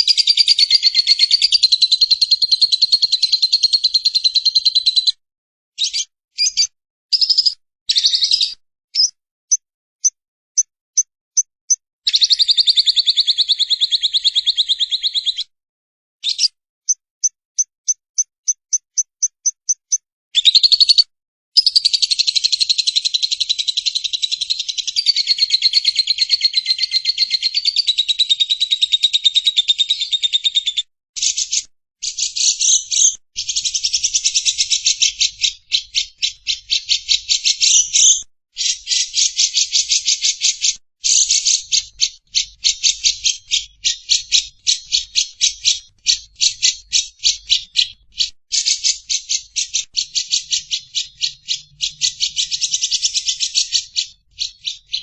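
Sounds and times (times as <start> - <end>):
lovebird chattering: 5.8 - 9.1, 12.1 - 15.4, 18.7 - 21.0, 21.6 - 30.6, 31.2 - 55.0.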